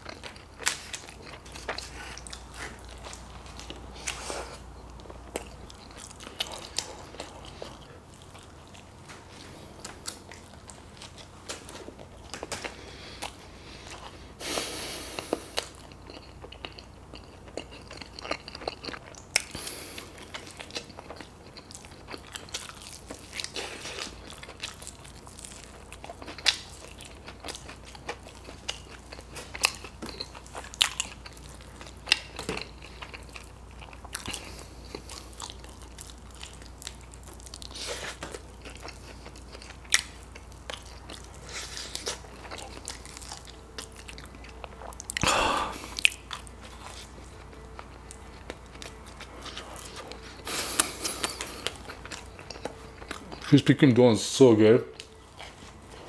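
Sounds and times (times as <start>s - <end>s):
chewing chicken wings: 0.0s - 53.9s.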